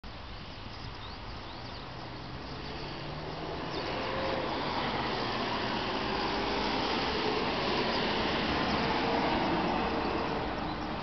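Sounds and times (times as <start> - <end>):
diesel engine running: 2.0 - 11.0.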